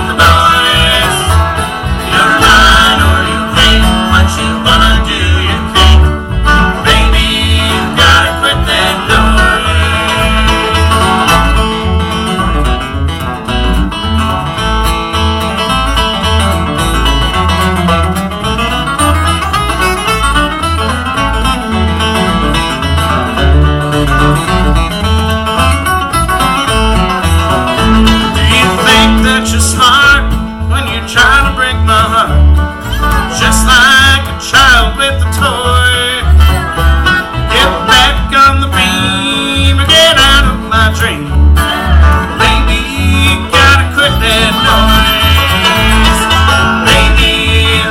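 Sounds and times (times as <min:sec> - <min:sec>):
steady bass beat: 0:00.0 - 0:21.6, 0:36.2 - 0:47.9
banjo: 0:00.0 - 0:47.9
guitar: 0:00.0 - 0:47.9.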